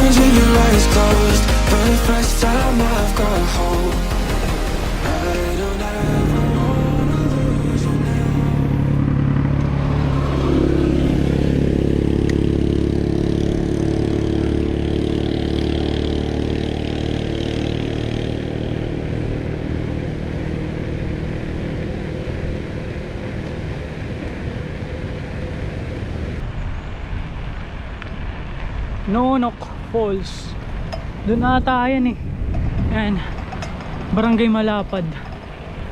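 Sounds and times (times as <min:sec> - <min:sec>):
road noise: 0:00.0 - 0:35.9
vehicle engine humming: 0:00.0 - 0:35.9
wind rushing: 0:29.7 - 0:34.2.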